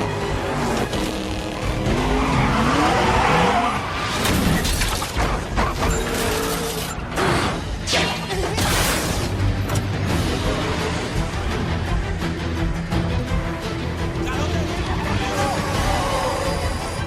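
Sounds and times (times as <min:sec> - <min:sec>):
tyres skidding: 0:00.0 - 0:07.8
car engines running hard: 0:00.0 - 0:07.9
film music score: 0:00.0 - 0:17.0.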